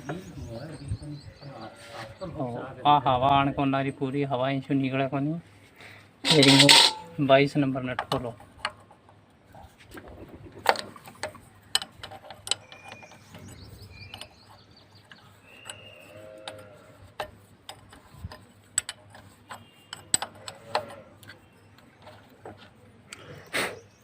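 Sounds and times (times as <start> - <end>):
spanner clicking on metal: 10.7 - 22.3
short squeaks: 12.5 - 17.0, 19.2 - 22.3.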